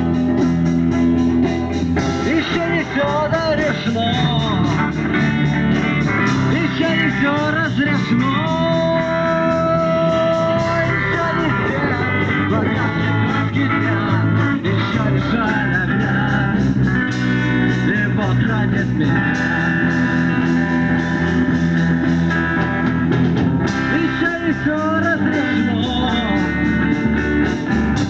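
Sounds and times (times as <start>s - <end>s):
bass guitar: 0.0s - 28.0s
electric guitar lead with bends: 0.0s - 28.0s
steady drum beat: 0.0s - 28.0s.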